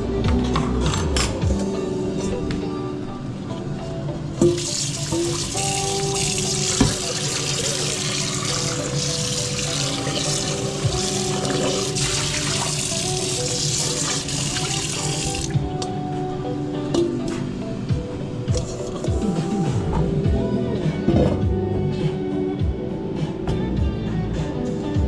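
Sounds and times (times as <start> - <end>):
tap running water into sink: 4.4 - 15.6.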